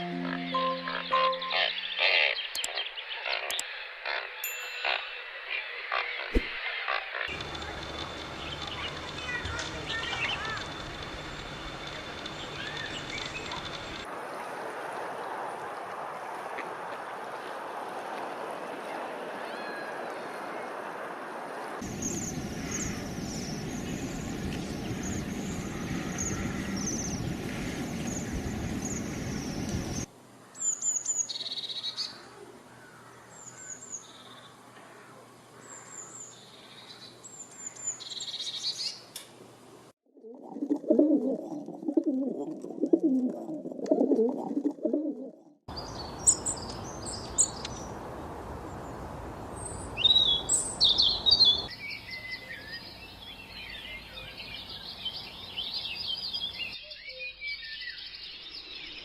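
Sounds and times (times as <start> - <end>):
songbirds chirping and singing: 0.0 - 14.0, 49.6 - 59.0.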